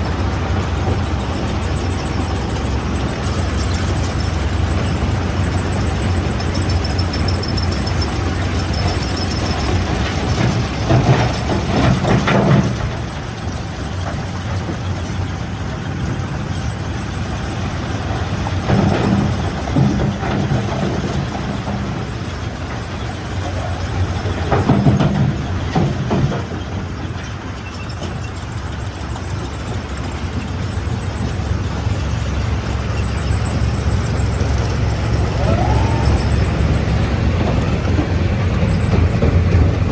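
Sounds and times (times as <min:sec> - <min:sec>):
stone crusher machinery humming: 0:00.0 - 0:39.9
stone crusher rumbling: 0:31.4 - 0:39.9
rising machine whine: 0:32.9 - 0:39.8.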